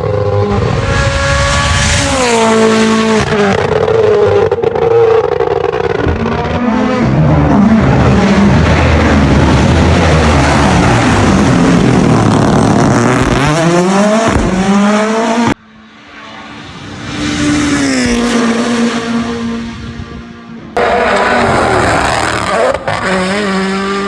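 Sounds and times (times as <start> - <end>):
rally car accelerating past: 0.0 - 15.6, 20.8 - 24.0
distant car engine: 0.0 - 24.0.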